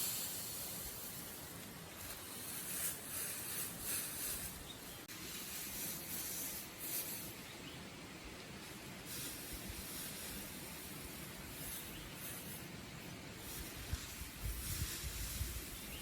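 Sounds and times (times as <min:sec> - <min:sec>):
rough scraping strokes: 0:00.0 - 0:07.4.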